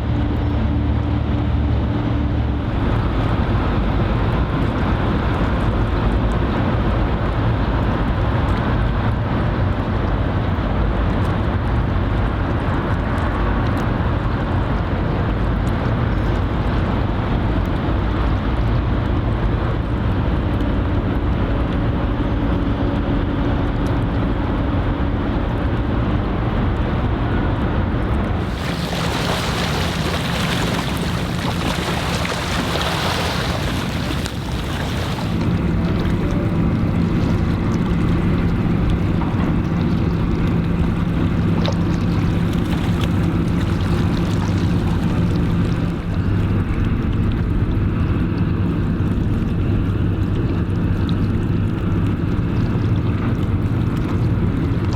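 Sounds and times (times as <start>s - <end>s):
boat engine drone: 0.0s - 54.9s
wind on microphone: 28.1s - 54.9s
lapping water: 28.4s - 54.9s.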